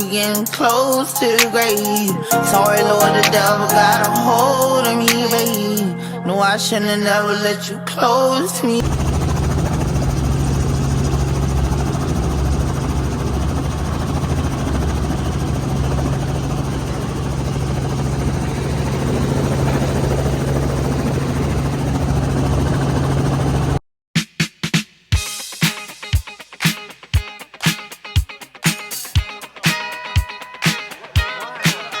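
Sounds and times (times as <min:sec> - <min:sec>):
helicopter engine and rotor drone: 0:08.8 - 0:23.8.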